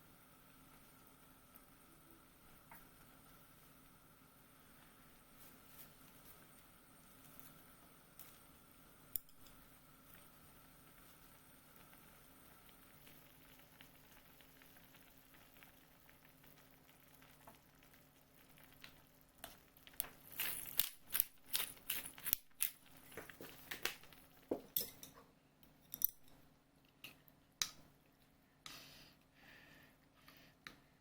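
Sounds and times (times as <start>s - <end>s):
faint room hum: 0.0s - 31.0s
sharp clicks and crinkling: 18.7s - 24.4s.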